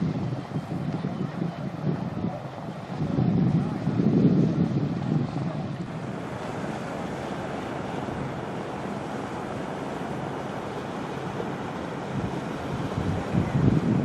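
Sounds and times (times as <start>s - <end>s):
wind rushing: 0.0s - 6.3s, 12.1s - 14.0s
small waves on beach: 0.0s - 14.0s.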